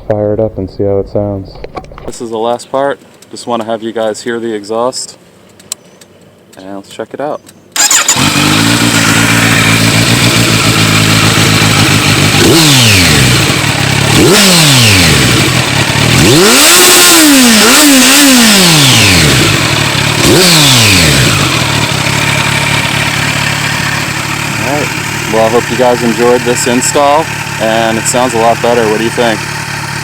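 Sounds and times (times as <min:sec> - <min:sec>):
motorcycle engine idling and revving: 0:07.8 - 0:30.0.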